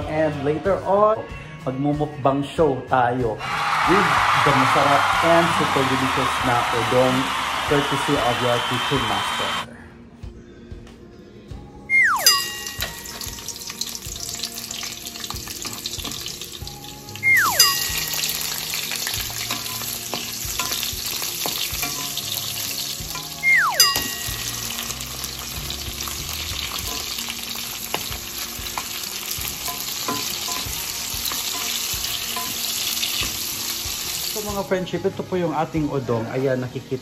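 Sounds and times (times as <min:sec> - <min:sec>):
oil sizzling in a wok: 0:03.4 - 0:09.6, 0:12.2 - 0:37.0
falling whistle-like tone: 0:11.9 - 0:12.6, 0:17.2 - 0:17.8, 0:23.4 - 0:23.9
wooden spatula stirring: 0:18.0 - 0:23.4.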